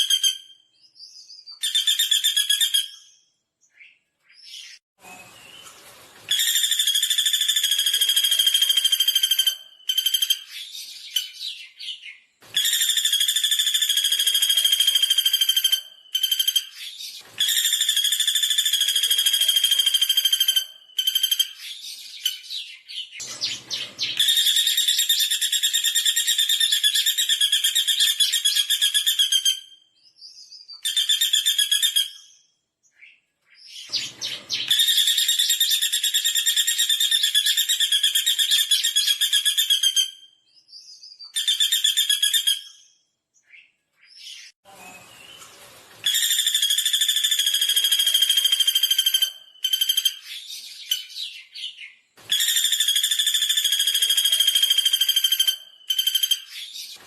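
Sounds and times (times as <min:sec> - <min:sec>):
woodpecker trilling: 0:46.1 - 0:51.7, 0:52.3 - 0:57.0.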